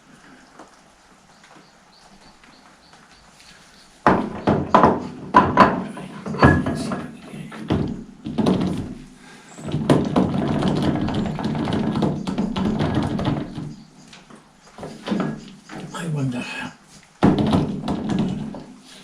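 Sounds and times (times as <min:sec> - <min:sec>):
metal knocks and clunks: 0:04.0 - 0:16.1, 0:17.2 - 0:18.8
metal rattling and scraping: 0:04.3 - 0:13.8, 0:14.7 - 0:16.0.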